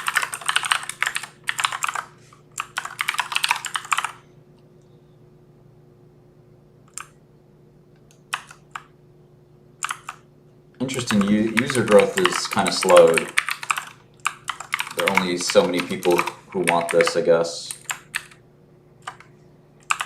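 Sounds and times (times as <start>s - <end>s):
typing on computer keyboard: 0.0s - 4.2s, 8.1s - 8.9s, 9.8s - 10.2s, 10.9s - 18.4s, 19.0s - 20.0s
faint steady hum: 0.0s - 20.0s.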